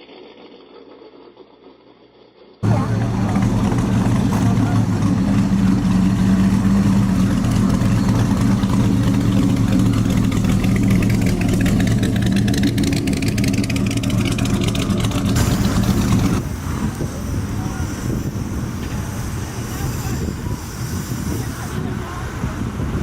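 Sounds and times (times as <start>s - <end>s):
car engine idling: 2.6s - 20.6s.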